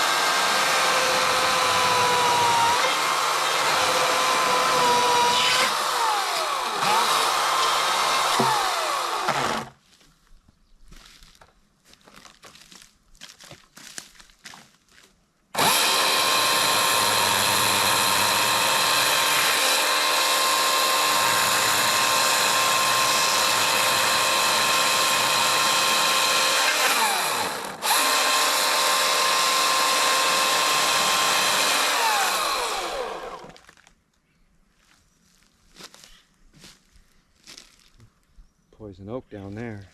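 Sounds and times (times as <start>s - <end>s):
electric chainsaw whine: 0.0s - 9.8s, 15.6s - 33.7s.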